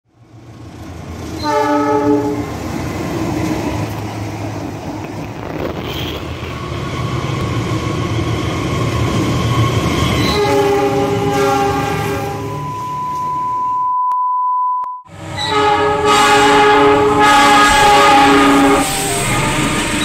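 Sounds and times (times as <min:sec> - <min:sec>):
train engine and wheels rumbling: 0:00.1 - 0:13.6, 0:15.1 - 0:20.0
train horn blast: 0:01.4 - 0:02.5, 0:10.2 - 0:12.6, 0:15.3 - 0:20.0.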